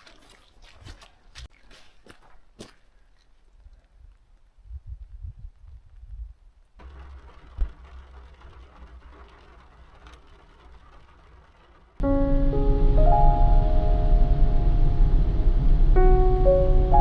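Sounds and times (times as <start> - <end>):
low rumbling: 6.8 - 17.0
background music with piano-like notes: 12.0 - 17.0
steady hiss: 12.0 - 17.0.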